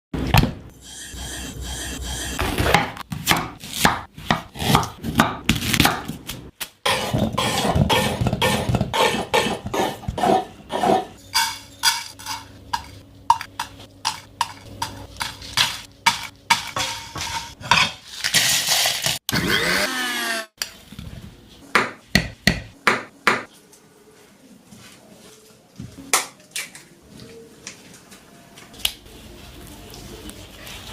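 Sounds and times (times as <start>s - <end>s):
utensils and cookware clattering: 6.9s - 19.2s.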